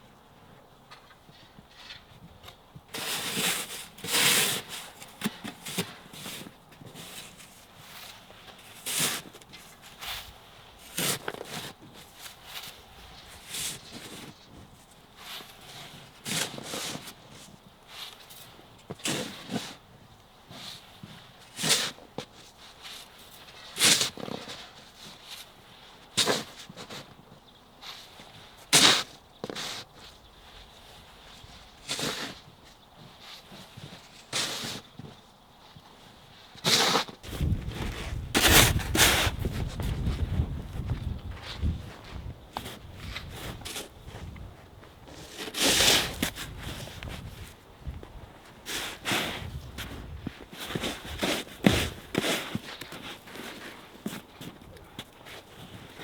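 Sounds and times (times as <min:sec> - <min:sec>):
crunches and scuffs in snow: 0:01.0 - 0:56.0
snow shovel scraping: 0:03.0 - 0:14.6, 0:22.9 - 0:25.5, 0:28.3 - 0:29.9, 0:31.8 - 0:32.5, 0:33.3 - 0:34.9, 0:36.6 - 0:40.6, 0:45.1 - 0:47.5, 0:48.6 - 0:54.6.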